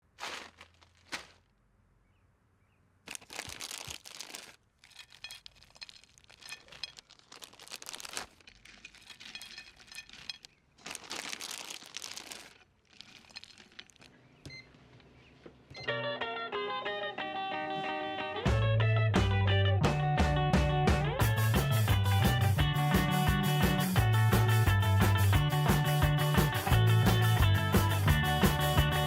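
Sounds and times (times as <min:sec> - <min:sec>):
food packaging crinkling and tearing: 0:00.0 - 0:01.5, 0:03.1 - 0:14.2.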